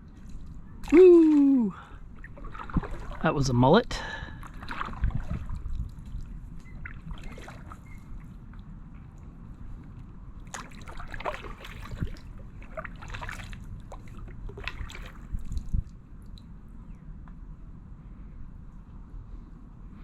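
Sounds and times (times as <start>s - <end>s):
steady low rumble: 0.0s - 20.0s
paddle splashing in water: 0.8s - 8.4s, 10.4s - 16.0s.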